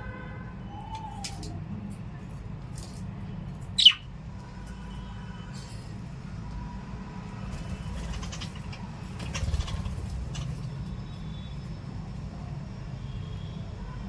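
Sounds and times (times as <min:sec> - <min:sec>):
pet birds chirping: 0:03.7 - 0:04.1, 0:07.6 - 0:11.3.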